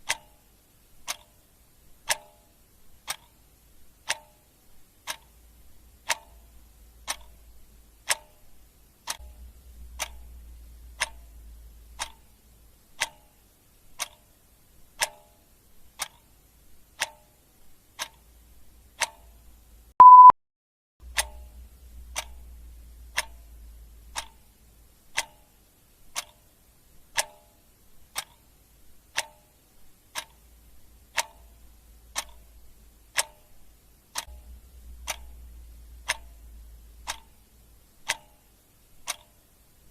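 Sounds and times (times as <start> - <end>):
clock ticking: 0.0 - 20.3, 21.0 - 39.9
short high beep: 20.0 - 20.4.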